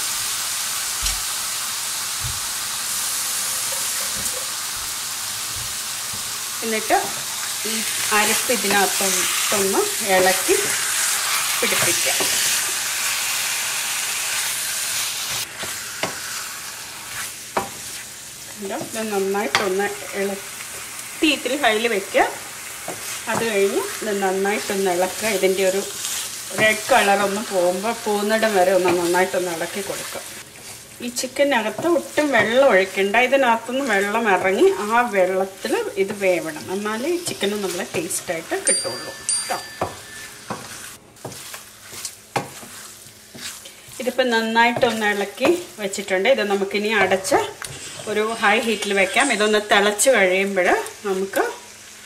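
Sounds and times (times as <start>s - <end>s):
meat sizzling in a pan: 0.0s - 39.0s, 39.8s - 52.0s
spatula scraping and squeaking on pan: 3.1s - 4.7s, 36.6s - 45.7s, 46.5s - 50.0s.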